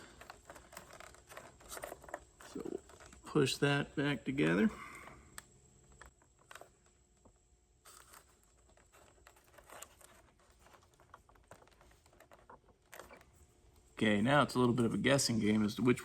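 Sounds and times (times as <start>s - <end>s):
small clicks and rustles of wire connectors: 0.0s - 3.5s, 4.8s - 14.0s.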